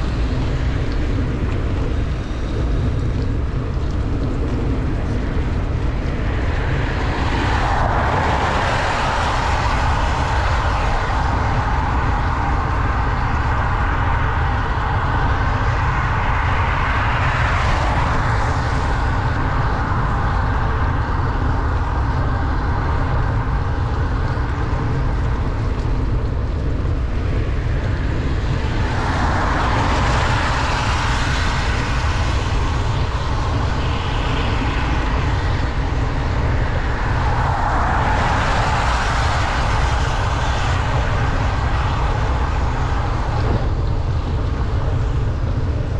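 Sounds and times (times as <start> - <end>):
wind rumble on microphone: 0.0 - 45.9
tyres hissing on wet road: 6.5 - 12.6, 28.8 - 43.4.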